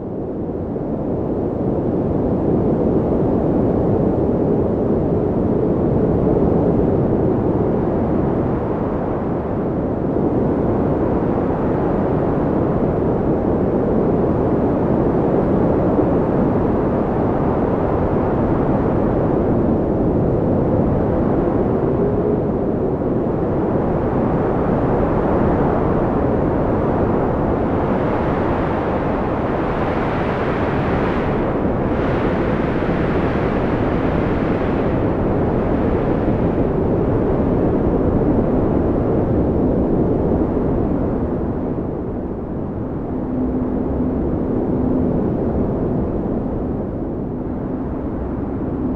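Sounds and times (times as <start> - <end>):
wind blowing: 22.9 - 48.9.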